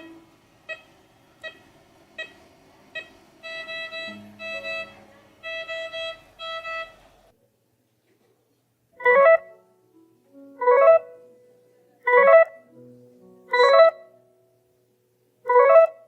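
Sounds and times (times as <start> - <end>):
alarm quick beeps: 0.0 - 7.0
heartbeat monitor beep: 0.0 - 7.0.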